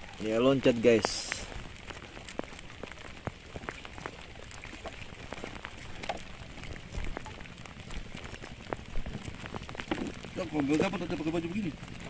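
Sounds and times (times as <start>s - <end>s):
rain falling: 0.0s - 12.0s
raindrops ticking on a surface: 0.0s - 12.0s.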